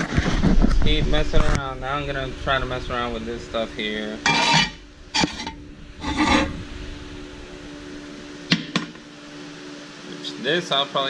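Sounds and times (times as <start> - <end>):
scrap metal scraping: 4.2 - 6.6.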